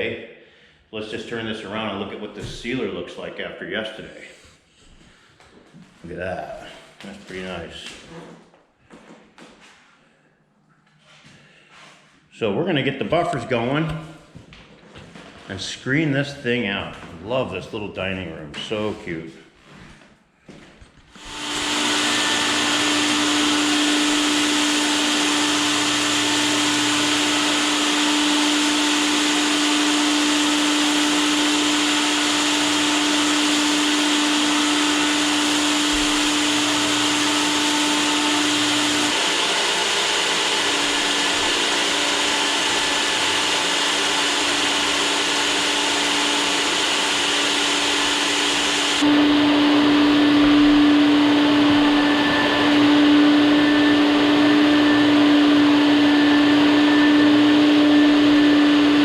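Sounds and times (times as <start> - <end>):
floor buffer running: 21.2 - 59.0.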